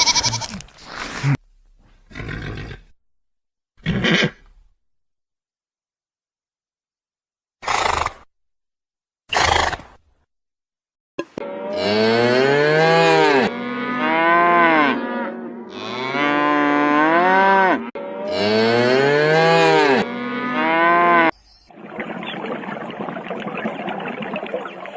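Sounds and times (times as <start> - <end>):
cow mooing: 11.4 - 21.3.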